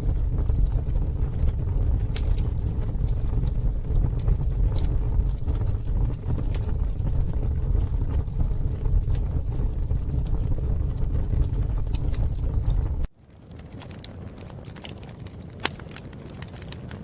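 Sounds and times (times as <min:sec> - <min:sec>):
steady low rumble: 0:00.0 - 0:13.1
campfire crackling and popping: 0:00.0 - 0:17.0.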